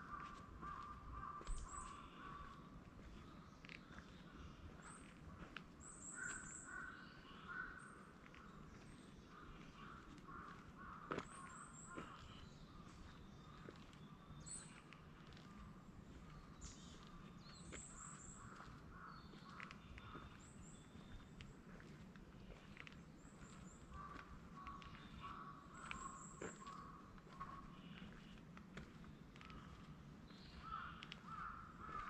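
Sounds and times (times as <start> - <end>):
low rough bird calls: 0.0 - 32.0.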